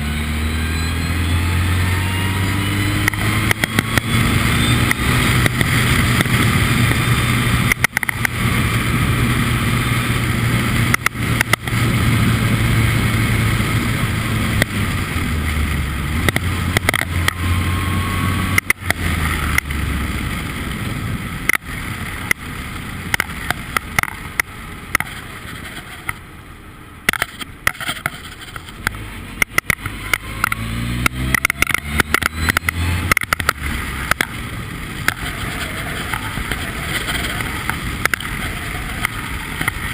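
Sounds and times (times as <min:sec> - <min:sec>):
race car engine running hard: 0:00.0 - 0:39.9
sharp crackles and pops: 0:02.9 - 0:17.8, 0:18.4 - 0:26.3, 0:27.0 - 0:39.9.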